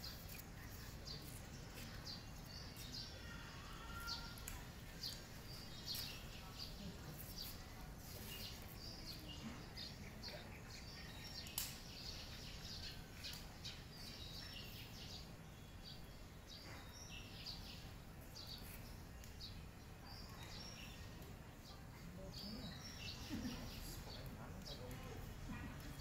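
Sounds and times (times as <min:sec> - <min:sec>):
faint birds chirping: 0:00.0 - 0:26.0.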